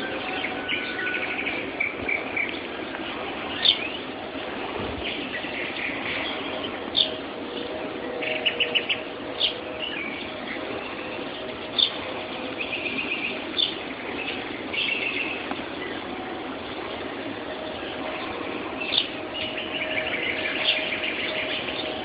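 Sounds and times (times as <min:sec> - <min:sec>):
songbird call notes: 0:00.0 - 0:04.2, 0:04.9 - 0:22.0
steady background noise: 0:00.0 - 0:22.0
bird trills: 0:05.0 - 0:17.0, 0:17.6 - 0:22.0.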